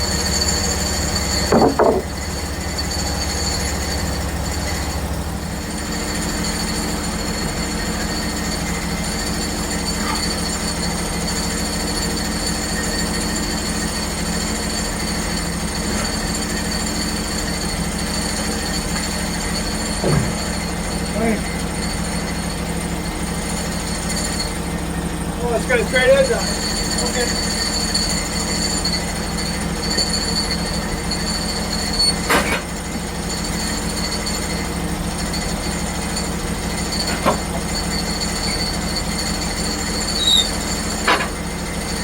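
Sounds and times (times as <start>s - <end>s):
band blade whine: 0.0s - 4.3s, 36.9s - 41.4s
band sawmill engine hum: 0.0s - 42.0s
saw blade squeal: 5.6s - 22.6s, 23.4s - 24.7s, 25.4s - 42.0s.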